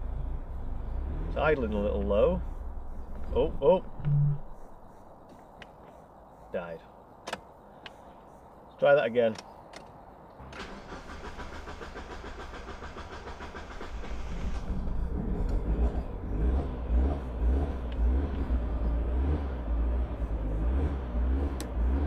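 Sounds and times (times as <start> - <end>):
engine starter cranking: 10.4 - 16.2
car engine uneven idle: 10.5 - 21.9.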